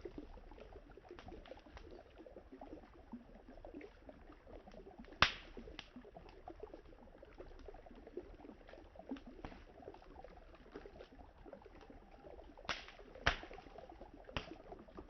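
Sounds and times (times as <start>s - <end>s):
loud sharp pop: 5.2s - 5.5s, 12.7s - 13.5s
wood fire crackling: 5.2s - 6.4s, 12.6s - 15.0s.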